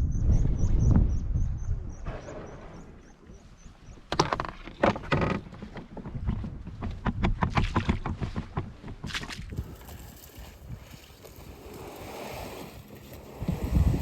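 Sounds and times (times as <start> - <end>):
paddle knocking against hull: 4.1 - 9.6
water splashing: 9.1 - 14.0.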